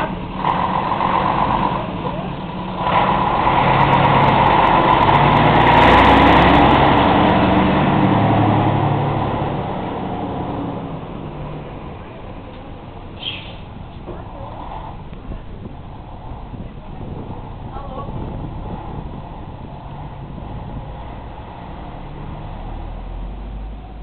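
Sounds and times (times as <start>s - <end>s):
coach diesel engine running: 0.0s - 24.0s.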